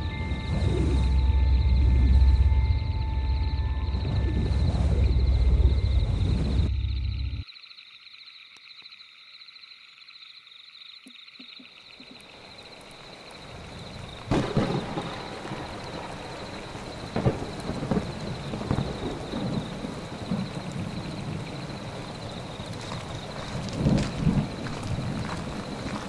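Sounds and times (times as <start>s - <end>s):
heavy rain: 0.0s - 6.7s, 12.0s - 26.0s
thunderclap: 0.0s - 6.7s, 13.4s - 26.0s
rolling thunder: 0.0s - 6.8s, 13.4s - 26.0s.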